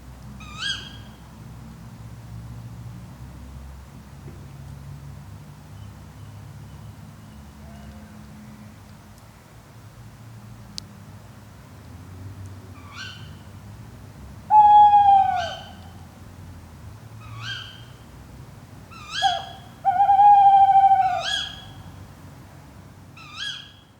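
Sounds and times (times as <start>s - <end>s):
owl hoots: 14.5s - 16.0s, 18.9s - 21.9s
owl ke-wick calls: 14.5s - 16.0s, 17.2s - 18.0s, 18.9s - 21.9s, 23.2s - 23.8s.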